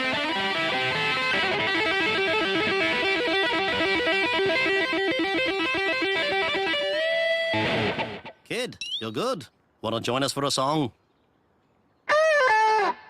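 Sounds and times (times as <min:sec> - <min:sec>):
rock music with electric guitar: 0:00.0 - 0:08.4.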